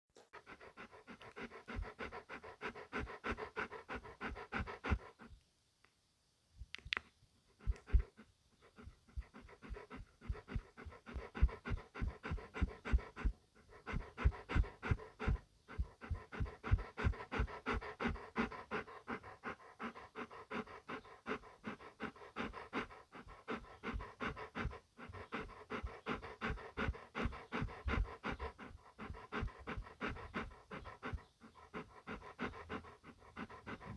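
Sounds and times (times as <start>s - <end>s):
dog panting: 0.2s - 5.4s, 7.5s - 33.9s.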